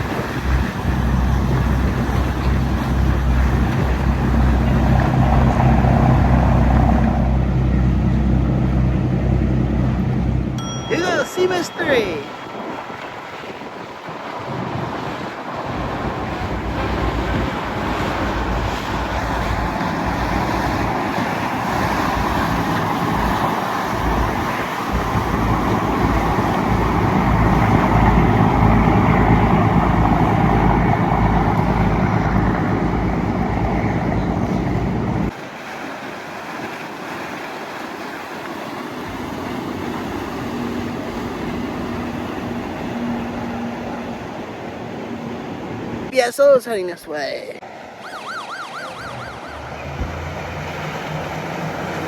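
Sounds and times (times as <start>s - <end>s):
wind on microphone: 0.0s - 10.7s, 12.3s - 35.3s
motorboat engines passing: 0.0s - 52.0s.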